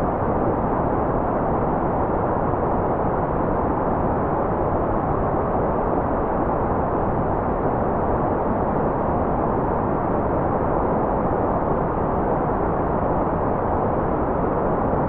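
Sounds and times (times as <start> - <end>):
muffled rumbling white noise: 0.0 - 15.0.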